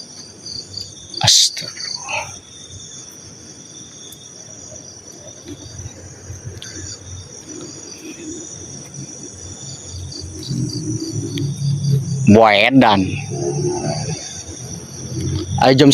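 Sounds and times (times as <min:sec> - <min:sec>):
crickets chirping: 0:00.0 - 0:15.9
low rumbling noise: 0:04.9 - 0:15.9.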